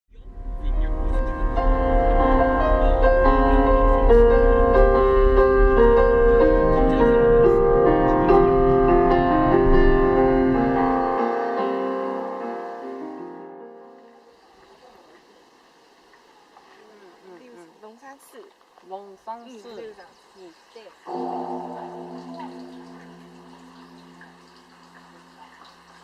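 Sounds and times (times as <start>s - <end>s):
keyboard melody of held notes: 0.3s - 14.3s, 21.1s - 26.0s
low rumble: 21.1s - 25.6s.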